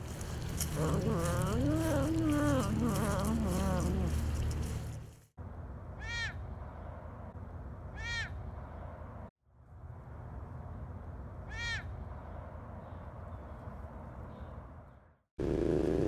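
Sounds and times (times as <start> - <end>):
wild cat wavering call: 0.0 - 5.0.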